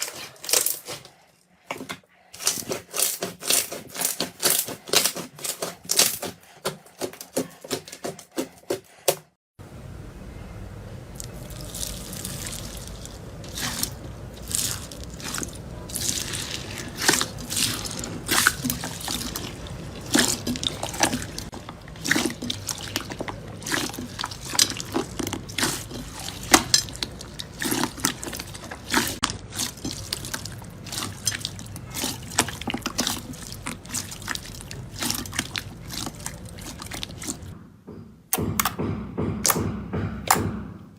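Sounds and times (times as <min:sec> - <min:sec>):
slime squishing with wet pops: 0:11.2 - 0:37.6.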